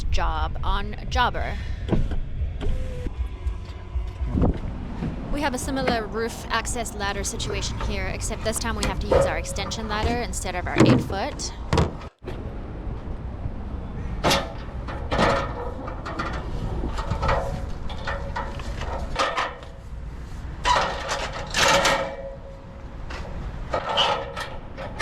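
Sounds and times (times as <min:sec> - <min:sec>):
steady low rumble: 0:00.0 - 0:11.6.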